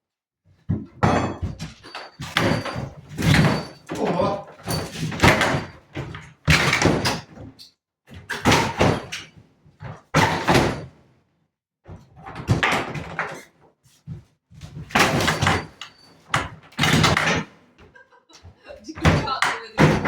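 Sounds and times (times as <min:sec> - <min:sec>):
loud bangs on furniture: 0:00.8 - 0:04.0, 0:04.6 - 0:07.4, 0:08.2 - 0:09.2, 0:10.1 - 0:11.0, 0:14.7 - 0:17.6, 0:19.0 - 0:20.0.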